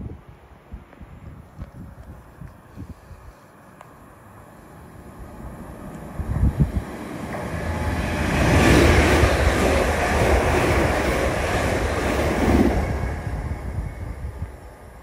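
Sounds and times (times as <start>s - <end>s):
train passing: 3.1s - 15.0s.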